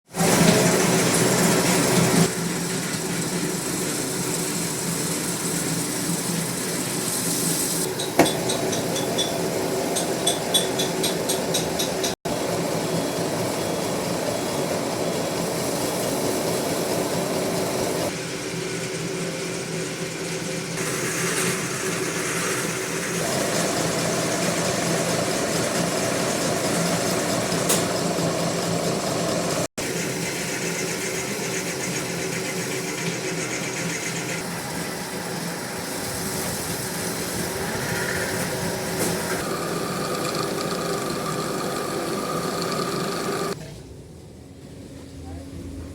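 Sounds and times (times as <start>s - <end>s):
metal lathe running: 7.8s - 18.1s, 20.1s - 43.6s.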